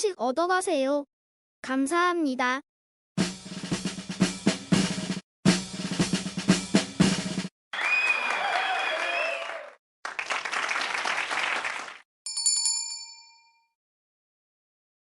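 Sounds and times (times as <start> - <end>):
applause-like noise: 7.7 - 12.0
bell ding: 12.3 - 13.8.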